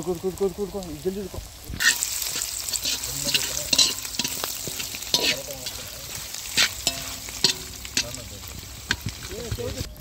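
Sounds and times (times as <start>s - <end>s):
food sizzling in hot oil: 0.0s - 10.0s
metal spatula scraping pan: 1.8s - 8.2s.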